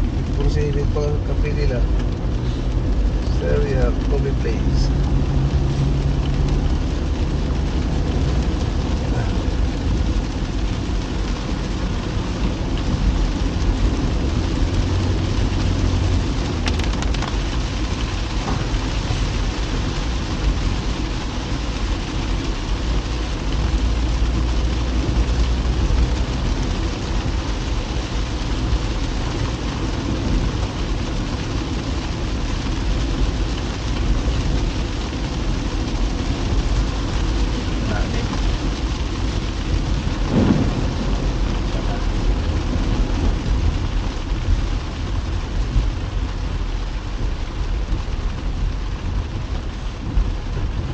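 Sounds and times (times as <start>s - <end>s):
rain hitting car: 0.0s - 50.9s
road and tyre rumble: 0.0s - 50.9s.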